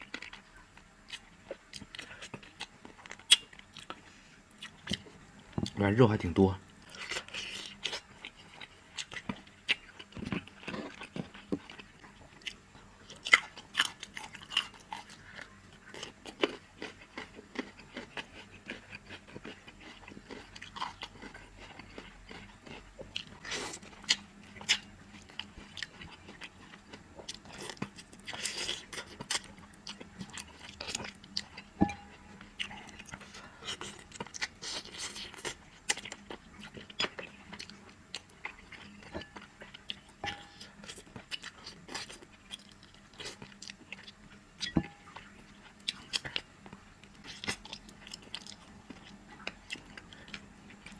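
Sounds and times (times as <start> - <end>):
person chewing with wet smacks: 0.0 - 5.9, 6.8 - 50.9.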